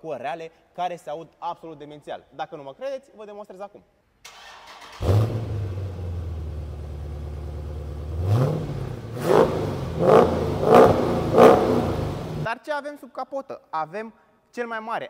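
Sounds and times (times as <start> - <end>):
car engine starting: 4.3 - 12.5
engine revving: 4.7 - 12.5
engine idling: 5.0 - 12.5.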